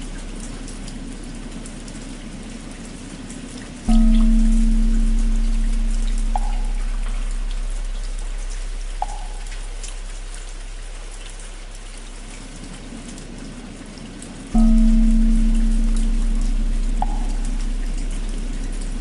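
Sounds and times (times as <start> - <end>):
rain pattering: 0.0 - 19.0
large bell humming: 3.9 - 12.2, 14.5 - 19.0.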